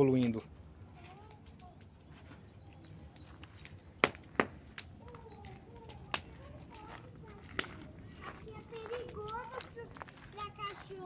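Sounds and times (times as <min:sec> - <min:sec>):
faint high chirps: 0:00.0 - 0:06.2
bonfire burning: 0:00.0 - 0:11.0
wood popping in fire: 0:03.0 - 0:11.0.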